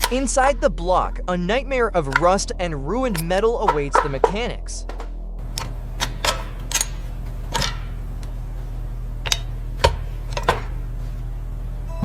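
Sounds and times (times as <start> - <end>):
steady low hum: 0.0 - 12.0
metal tools clinking: 3.1 - 8.4.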